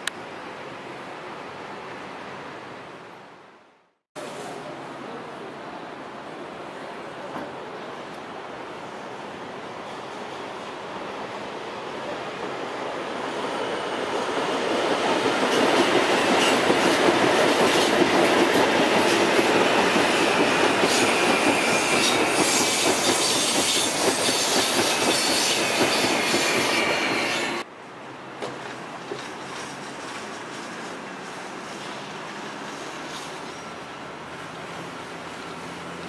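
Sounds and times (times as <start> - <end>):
steady outdoor hiss: 0.0 - 36.0
train wheels running on rails: 8.6 - 27.7, 28.4 - 36.0.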